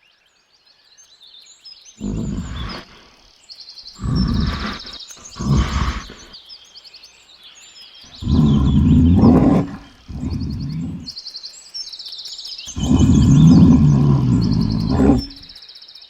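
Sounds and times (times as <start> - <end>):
birds chirping: 1.4 - 15.8
large animal growling: 2.0 - 3.1, 4.0 - 6.4, 8.1 - 11.1, 12.7 - 15.5.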